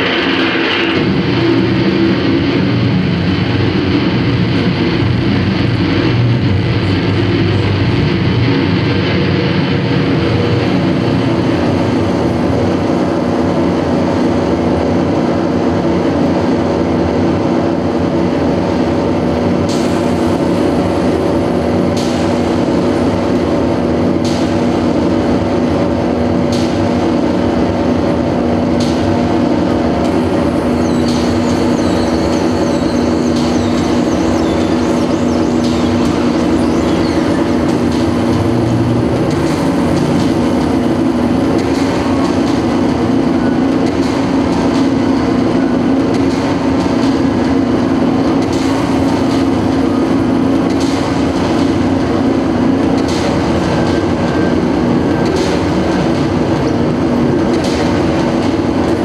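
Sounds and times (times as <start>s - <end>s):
low drone: 0.0s - 44.5s
noise music: 0.0s - 59.0s.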